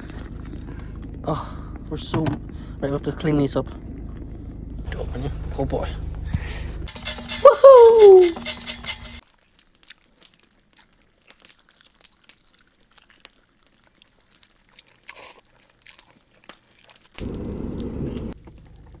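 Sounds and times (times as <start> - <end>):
crunchy food being chewed: 9.1 - 19.0.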